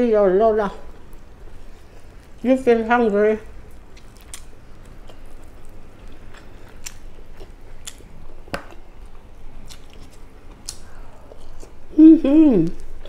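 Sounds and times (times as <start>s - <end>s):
person chewing: 3.5s - 11.9s.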